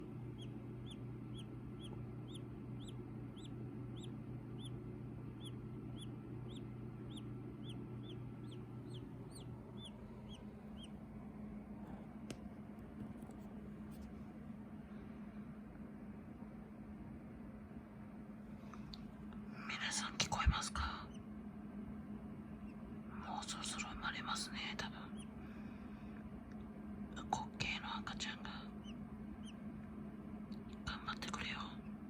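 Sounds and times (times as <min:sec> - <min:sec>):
steady low hum: 0:00.0 - 0:32.0
chick peeping: 0:00.3 - 0:11.0, 0:28.4 - 0:29.6.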